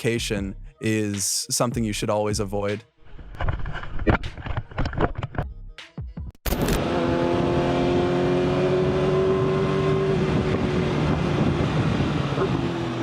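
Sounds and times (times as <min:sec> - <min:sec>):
motorcycle engine cruising: 0:06.5 - 0:13.0
road and wind noise: 0:06.5 - 0:13.0.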